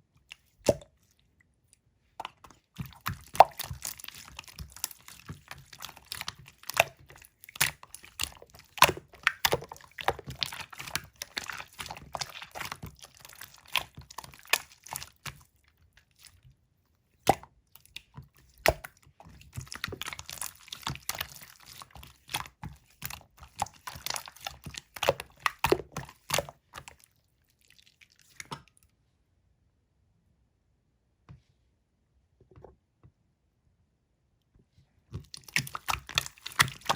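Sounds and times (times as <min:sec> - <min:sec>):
slime squished by hand: 0:02.2 - 0:16.4, 0:17.2 - 0:28.8, 0:35.2 - 0:36.9.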